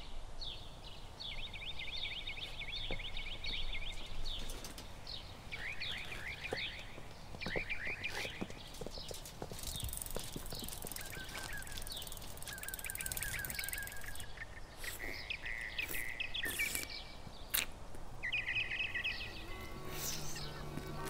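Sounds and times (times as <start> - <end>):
outdoor background noise: 0.0 - 21.0
small birds chirping: 0.0 - 21.0
low music: 18.6 - 21.0.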